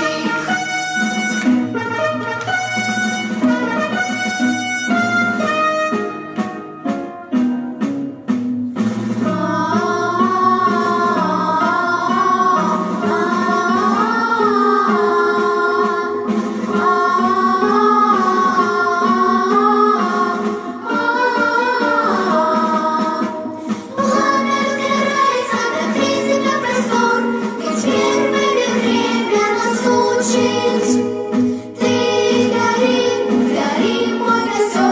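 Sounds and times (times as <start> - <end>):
instrumental accompaniment: 0.0 - 34.9
woman singing: 9.3 - 34.9.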